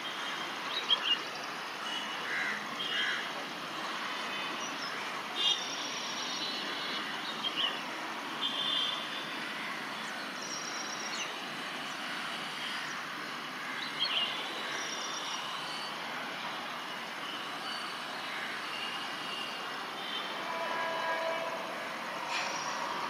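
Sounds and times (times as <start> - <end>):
train rushing by: 19.8 - 23.0.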